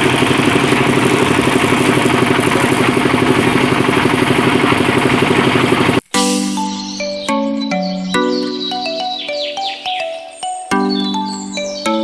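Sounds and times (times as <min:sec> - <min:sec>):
small engine chugging: 0:00.0 - 0:06.1.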